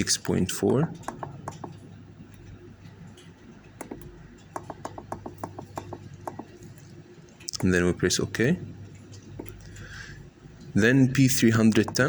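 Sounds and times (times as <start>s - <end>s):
low steady hum: 0.0s - 12.0s
keypad buttons clicking: 3.7s - 6.7s.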